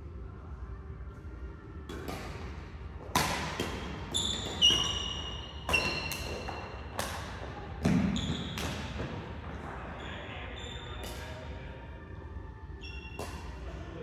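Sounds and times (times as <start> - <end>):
racket hitting shuttlecock: 1.9 - 9.3
shoes squeaking on court floor: 3.6 - 11.3, 12.8 - 13.5.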